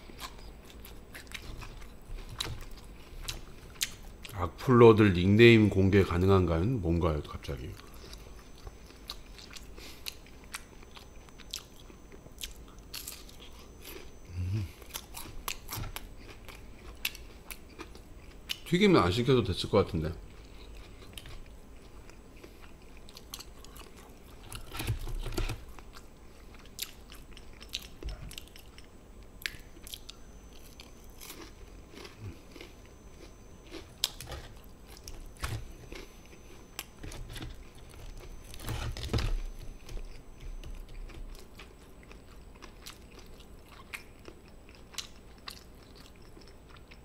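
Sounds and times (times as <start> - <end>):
person chewing crisp fried food: 0.0 - 4.4, 7.7 - 18.7, 20.2 - 47.0.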